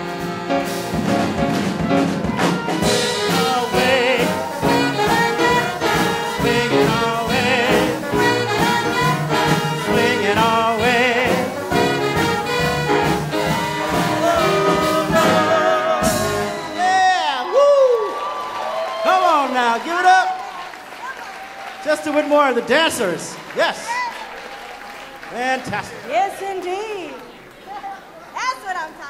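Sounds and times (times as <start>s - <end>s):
big band swing music: 0.0s - 21.0s.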